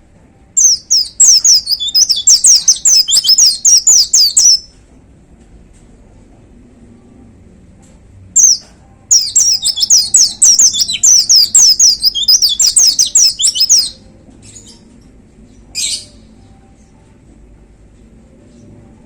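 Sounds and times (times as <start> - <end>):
bird singing high falling notes: 0.6 - 4.6, 8.4 - 14.0.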